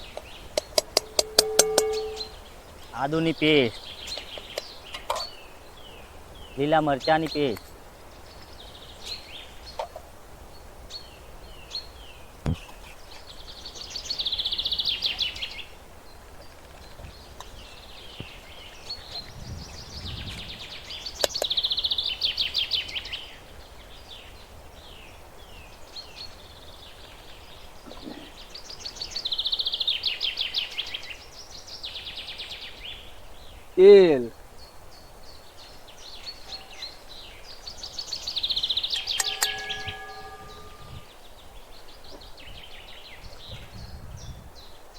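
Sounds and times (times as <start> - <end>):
bird down-slurred chirps: 0.0 - 7.6, 36.2 - 41.2
bird trilled song: 0.0 - 44.8.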